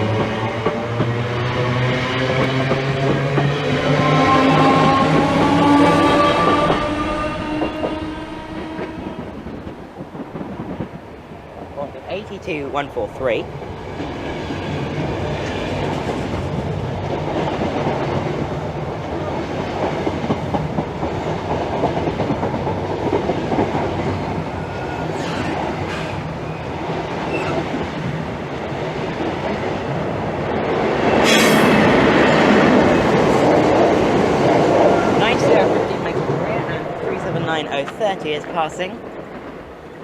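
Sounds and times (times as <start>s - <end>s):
electric train passing: 0.0s - 40.0s
wheels clicking over rail joints: 19.8s - 28.2s.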